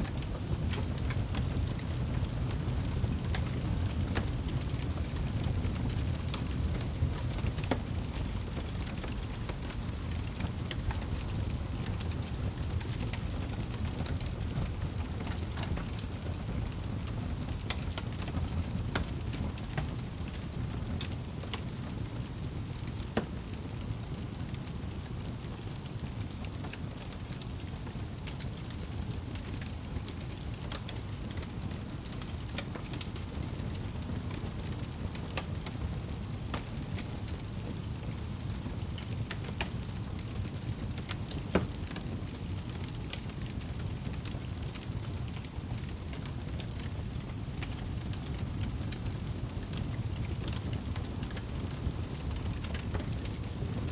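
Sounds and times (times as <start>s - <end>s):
wood fire crackling: 0.0s - 53.9s.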